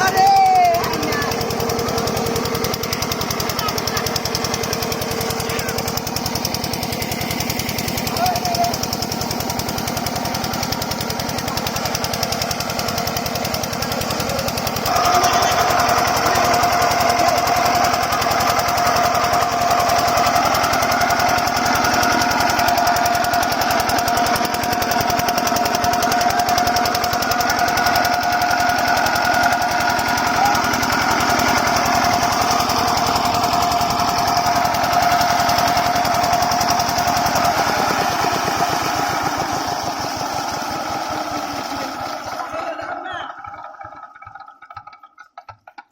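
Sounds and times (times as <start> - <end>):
diesel engine knocking: 0.0 - 45.9.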